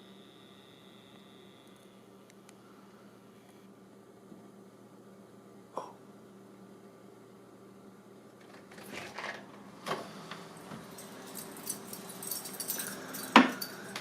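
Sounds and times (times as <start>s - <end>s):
keys jangling at a lock: 10.6s - 14.0s.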